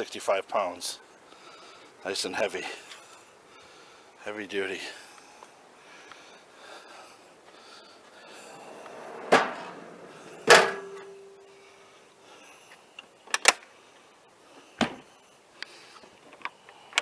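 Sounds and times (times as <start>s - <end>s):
metal drawer slides running: 8.0s - 11.6s
hard metallic clunks: 8.1s - 11.6s
latch clicks: 8.5s - 11.4s.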